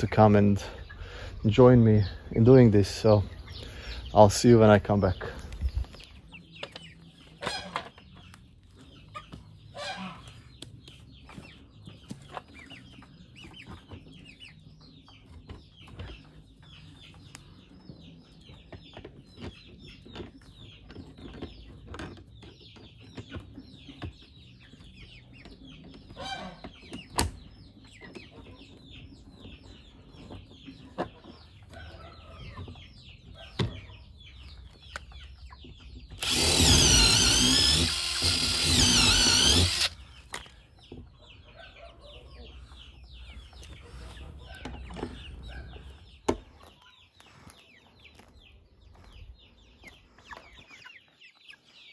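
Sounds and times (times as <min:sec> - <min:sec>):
chickens clucking and peeping: 0:00.0 - 0:37.9, 0:39.5 - 0:51.9
power drill: 0:36.2 - 0:40.0.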